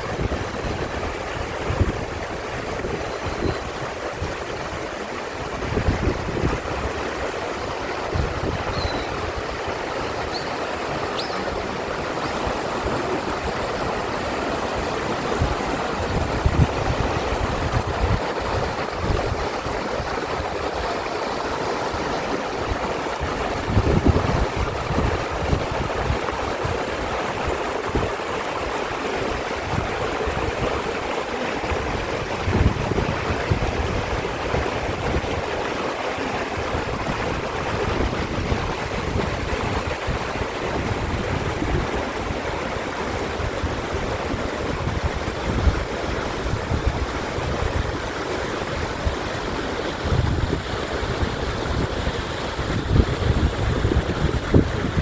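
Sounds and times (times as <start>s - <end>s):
stream rushing over rocks: 0.0s - 55.0s
wind buffeting microphone: 0.0s - 55.0s
faint high chirps: 8.7s - 9.1s, 10.0s - 11.5s.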